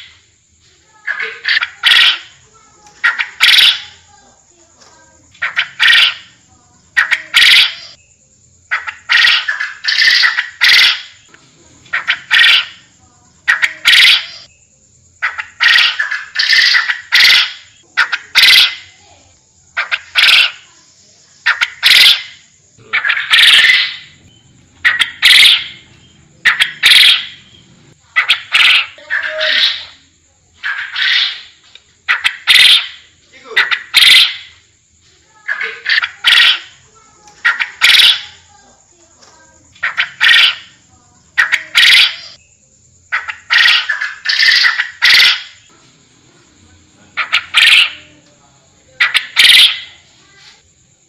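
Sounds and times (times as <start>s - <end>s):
quail calling harshly: 1.0s - 4.1s, 5.3s - 8.0s, 8.7s - 11.3s, 11.9s - 14.5s, 15.2s - 19.0s, 19.8s - 20.7s, 21.4s - 24.2s, 24.8s - 27.5s, 28.1s - 30.0s, 30.6s - 34.6s, 35.4s - 38.5s, 39.8s - 42.4s, 43.1s - 45.7s, 47.2s - 48.1s, 49.0s - 50.1s.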